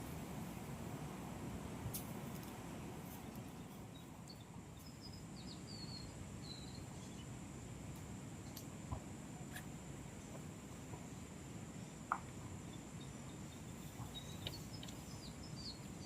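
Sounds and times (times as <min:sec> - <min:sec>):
low outdoor noise: 0:00.0 - 0:16.0
small high bird chirps: 0:03.2 - 0:07.3, 0:12.6 - 0:16.0.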